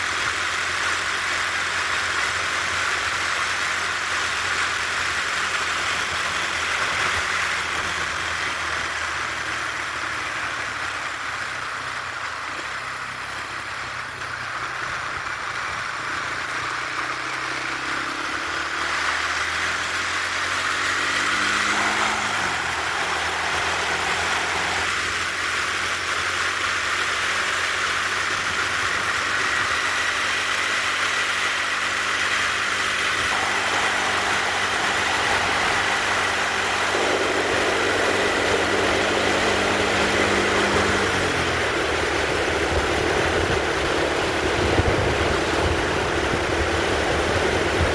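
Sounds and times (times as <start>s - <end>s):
motorcycle engine running: 0.0s - 47.9s
wind noise: 31.9s - 47.9s.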